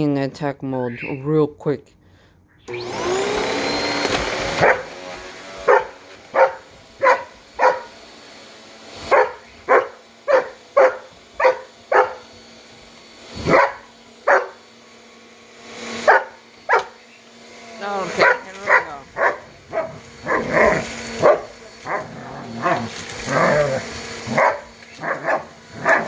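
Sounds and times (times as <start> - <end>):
vacuum cleaner motor whine: 2.7 - 26.0
dog barking sharply: 4.6 - 4.9, 5.6 - 8.0, 9.1 - 12.2, 13.4 - 14.6, 16.0 - 17.0, 18.2 - 22.8, 24.3 - 26.0.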